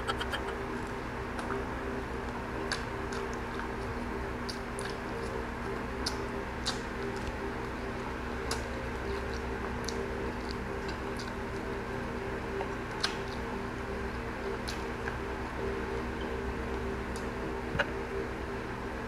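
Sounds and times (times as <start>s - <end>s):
chewing fried meat: 0.0s - 18.9s
steady low hum: 0.0s - 19.0s
wet clicks and lip smacks: 4.4s - 5.4s, 6.1s - 7.4s, 8.4s - 11.4s, 12.6s - 13.4s.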